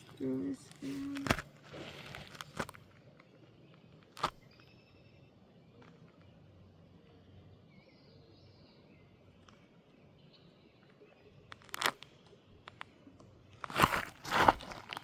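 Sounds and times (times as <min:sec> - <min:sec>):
sharp crunching clicks: 0:00.8 - 0:04.7, 0:11.5 - 0:15.0
faint bird chirps: 0:02.9 - 0:13.2.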